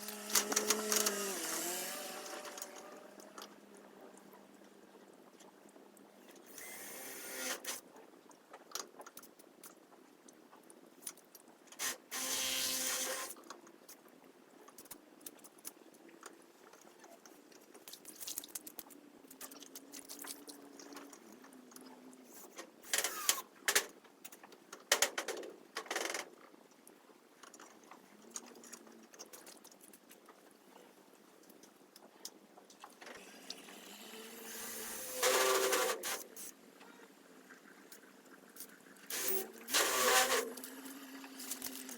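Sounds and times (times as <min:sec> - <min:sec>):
cordless drill driving screws: 0:00.0 - 0:03.0, 0:06.6 - 0:07.8, 0:11.8 - 0:13.4, 0:22.9 - 0:23.4, 0:34.2 - 0:36.3, 0:39.1 - 0:41.9.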